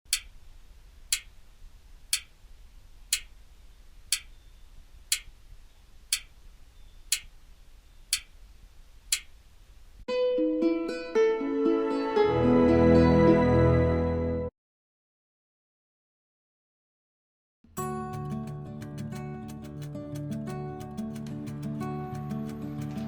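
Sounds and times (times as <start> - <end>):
clock-like ticks: 0.1 - 0.4, 1.1 - 1.4, 2.1 - 2.4, 3.1 - 3.4, 4.1 - 4.4, 5.1 - 5.4, 6.1 - 6.4, 7.1 - 7.3, 8.1 - 8.4, 9.1 - 9.4
soft music with plucked notes: 10.1 - 14.5, 17.7 - 23.0.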